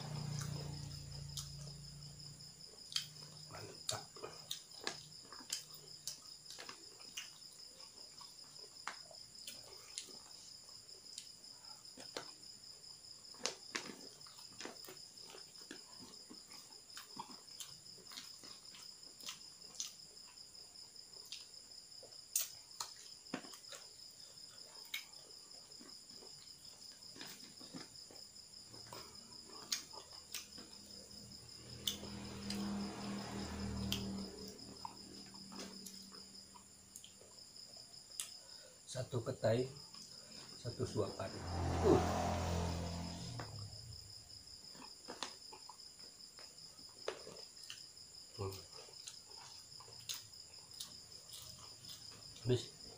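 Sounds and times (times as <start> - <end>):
crickets trilling: 0.0 - 52.9
chewing clicks and smacks: 2.9 - 10.3, 11.1 - 12.5, 13.3 - 20.4, 21.2 - 21.6, 22.3 - 23.9, 24.5 - 31.0, 44.7 - 47.9, 48.5 - 52.4.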